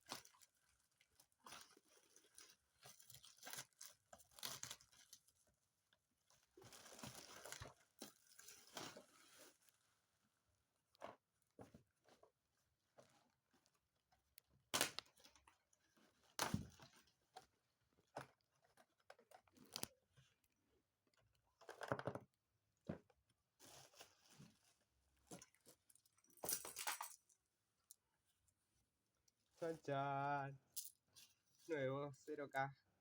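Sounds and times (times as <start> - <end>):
packaging rustling and tearing: 0.0 - 5.4, 6.6 - 9.7.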